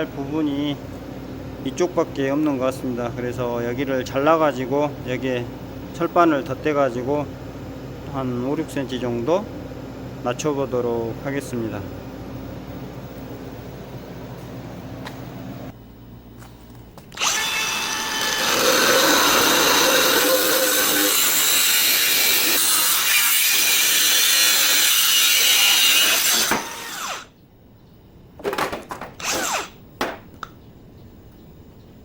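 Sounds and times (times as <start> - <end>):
power tool cutting steel: 17.2 - 27.3, 29.2 - 29.8.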